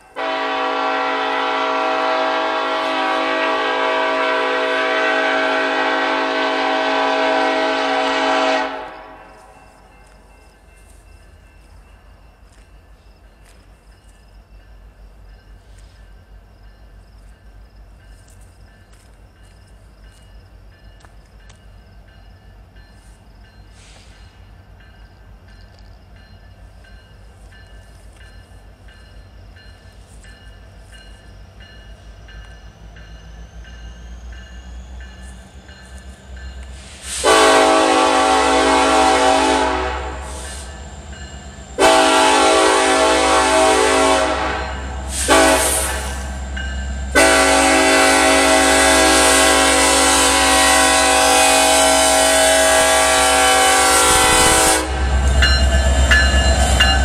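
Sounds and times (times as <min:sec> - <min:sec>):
diesel locomotives rumbling: 0:00.0 - 0:57.0
train air horn blasts: 0:00.1 - 0:09.6, 0:36.7 - 0:40.8, 0:41.8 - 0:57.0.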